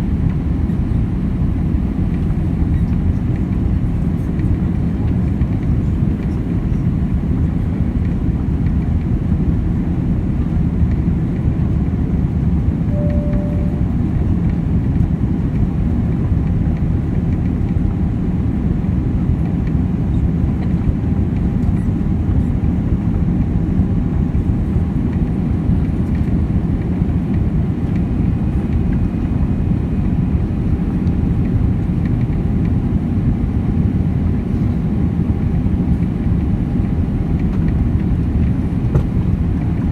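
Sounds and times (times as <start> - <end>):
airliner cabin engine rumble: 0.0 - 39.9
faint short tone: 12.9 - 14.2.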